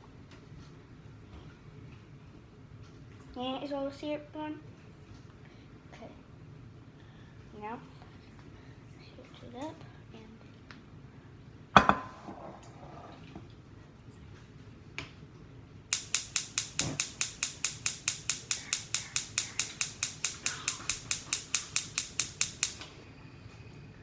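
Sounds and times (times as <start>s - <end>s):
rapid mechanical clicks: 15.9s - 23.0s.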